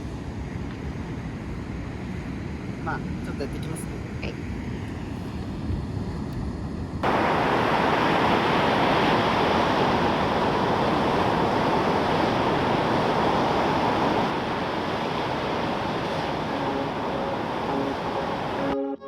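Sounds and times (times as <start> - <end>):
heavy surf breaking: 7.0 - 18.8.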